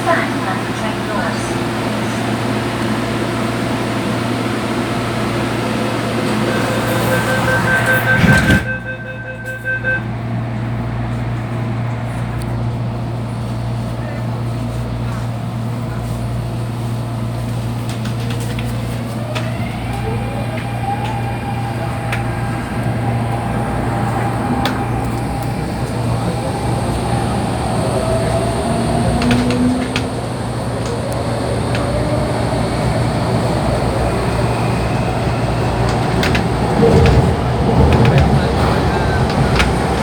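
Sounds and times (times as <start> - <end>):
wheels rumbling on rail: 0.0 - 40.0
electric train motor whine: 17.3 - 40.0.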